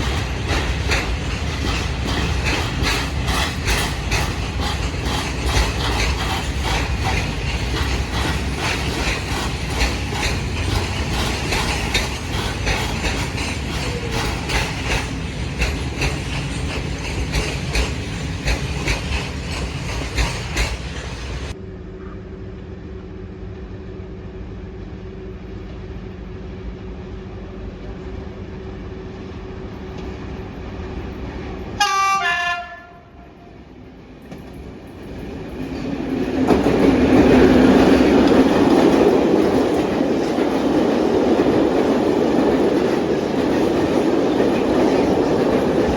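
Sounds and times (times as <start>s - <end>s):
train wheels clattering over rail joints: 0.0s - 21.6s, 34.2s - 45.9s
train horn blast: 31.8s - 33.6s.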